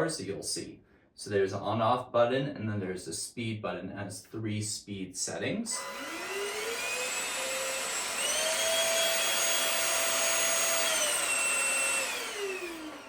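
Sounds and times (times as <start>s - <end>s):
vacuum motor whining: 5.7s - 13.0s.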